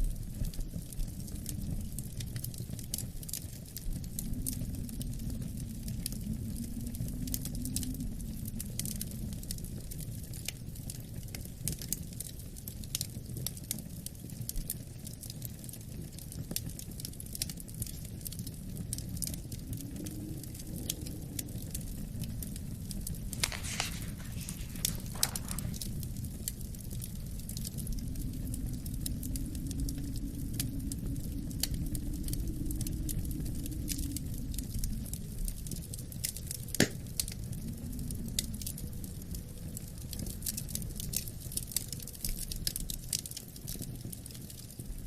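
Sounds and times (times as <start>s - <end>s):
low wind rumble: 0.0s - 10.4s, 17.7s - 43.0s
wood fire crackling: 0.0s - 45.0s
fire pops: 20.4s - 30.2s, 31.6s - 37.6s.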